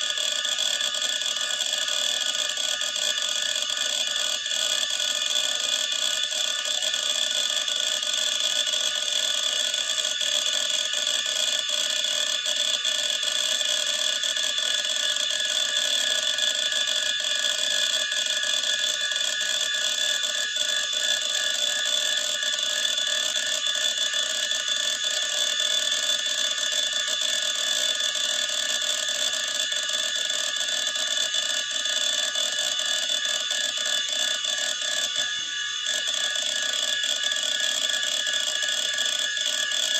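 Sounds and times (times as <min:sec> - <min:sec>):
hard disk whining: 0:30.2 - 0:39.9.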